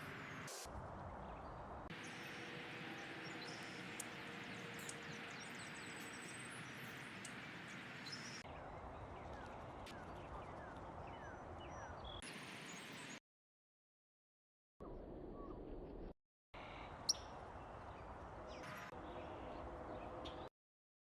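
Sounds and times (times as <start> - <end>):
birds chirping: 1.9 - 8.4.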